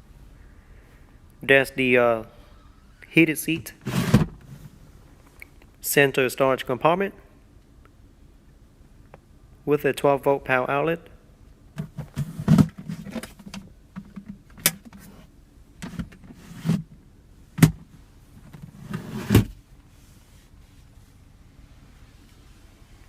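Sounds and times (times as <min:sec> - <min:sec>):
soft handling noises: 0:17.8 - 0:23.0.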